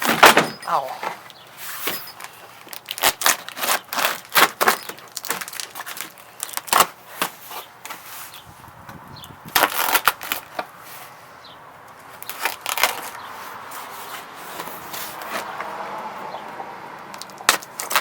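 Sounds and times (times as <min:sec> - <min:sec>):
packaging rustling: 0:01.7 - 0:08.4, 0:09.5 - 0:10.7, 0:12.1 - 0:13.2
packaging clacks and knocks: 0:01.8 - 0:08.0.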